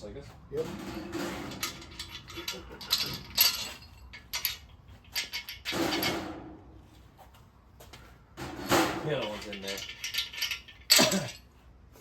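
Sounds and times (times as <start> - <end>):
metal parts clattering: 0.6 - 6.4, 8.4 - 11.6
metal parts clicking and clinking: 0.6 - 6.4, 8.5 - 11.6.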